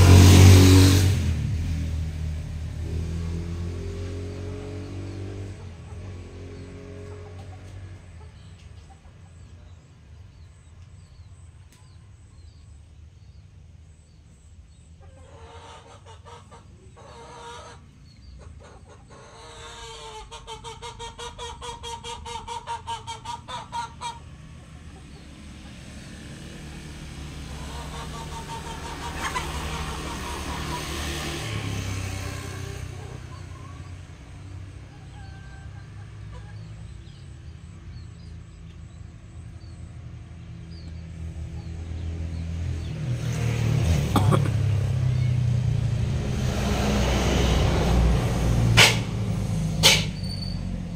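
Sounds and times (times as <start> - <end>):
vehicle passing: 0.0 - 9.3, 15.1 - 50.9
chickens clucking: 5.5 - 10.6, 15.0 - 37.6
chicken cackling: 15.0 - 25.8, 27.4 - 31.5, 34.8 - 37.2.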